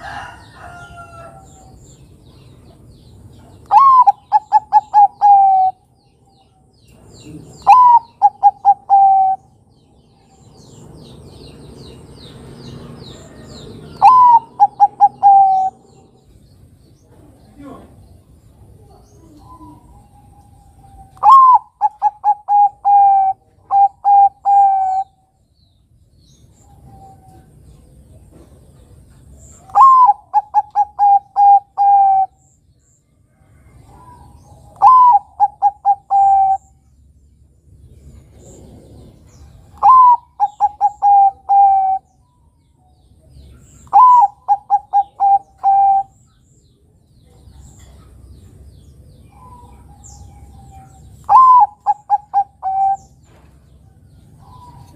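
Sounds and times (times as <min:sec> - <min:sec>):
dove cooing: 0:03.4 - 0:05.8, 0:07.2 - 0:09.6, 0:13.3 - 0:16.2, 0:18.9 - 0:25.2, 0:29.6 - 0:32.4, 0:33.9 - 0:36.8, 0:38.4 - 0:42.1, 0:43.7 - 0:46.2, 0:49.3 - 0:53.4.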